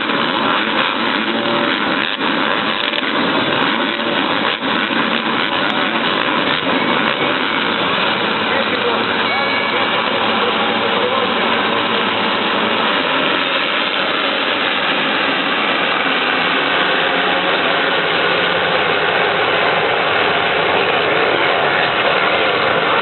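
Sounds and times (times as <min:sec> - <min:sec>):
motorcycle engines rasping: 0:00.0 - 0:23.0.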